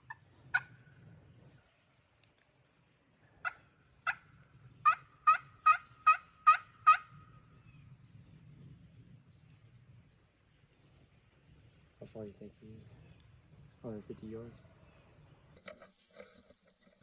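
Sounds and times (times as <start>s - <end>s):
turkey yelps: 0.0s - 0.8s, 3.4s - 7.2s.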